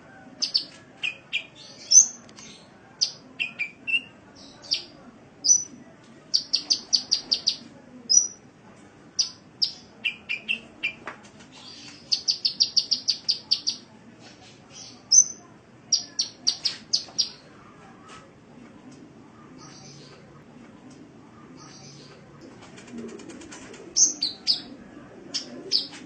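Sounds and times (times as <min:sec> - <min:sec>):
sunbird high chirps and trills: 0:06.3 - 0:08.4, 0:11.7 - 0:13.8.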